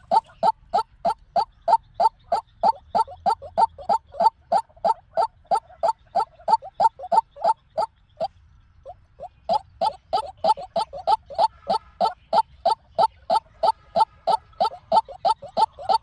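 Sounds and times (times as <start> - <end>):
waterhen calling harsh notes: 0.0 - 7.9, 9.2 - 16.0.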